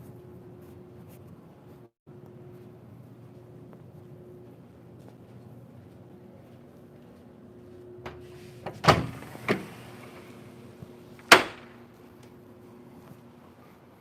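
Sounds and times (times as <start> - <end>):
low steady hum: 0.0 - 14.0
door banging shut: 8.1 - 9.9, 11.2 - 11.8.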